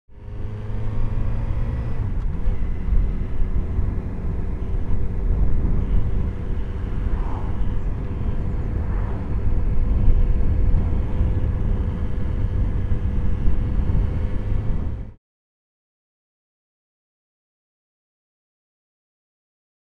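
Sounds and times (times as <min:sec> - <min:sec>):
wind and road noise: 0:00.1 - 0:15.2
motorcycle engine running: 0:00.2 - 0:15.2.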